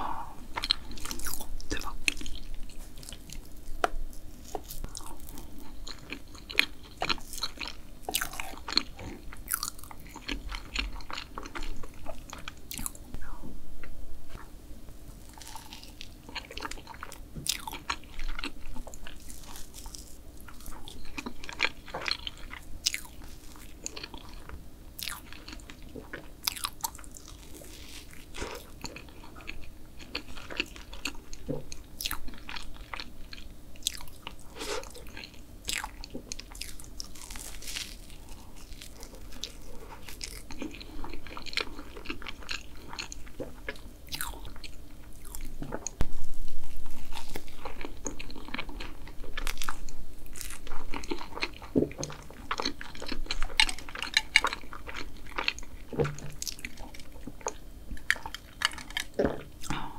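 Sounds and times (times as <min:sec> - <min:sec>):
close-miked chewing and mouth clicks: 0:15.2 - 0:46.0, 0:46.9 - 0:59.8
crunching bites: 0:15.3 - 0:25.6, 0:34.8 - 0:43.2.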